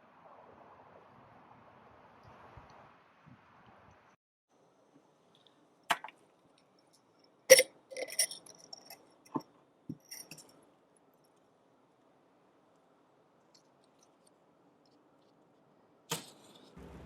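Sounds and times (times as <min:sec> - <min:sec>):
cooking gear clinking: 0:07.5 - 0:09.4, 0:10.0 - 0:10.5.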